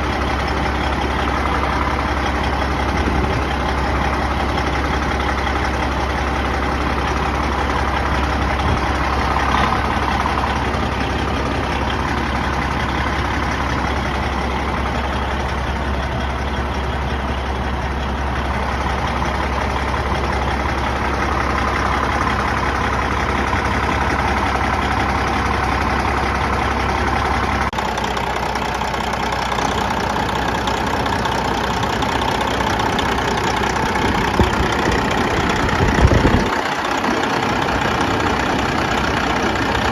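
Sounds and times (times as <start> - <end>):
diesel truck engine rumbling: 0.0 - 39.9.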